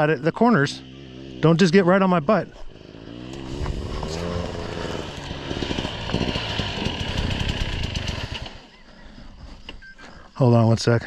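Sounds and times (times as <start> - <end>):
dirt bike engine revving: 0.0 - 8.7.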